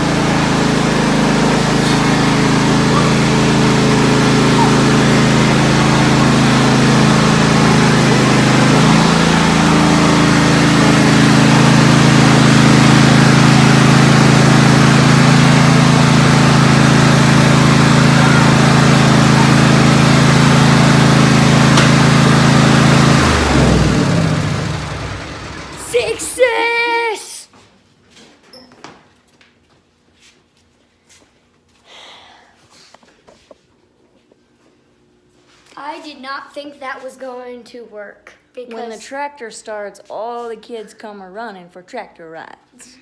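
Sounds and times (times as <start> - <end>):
tractor engine running: 0.0 - 26.5.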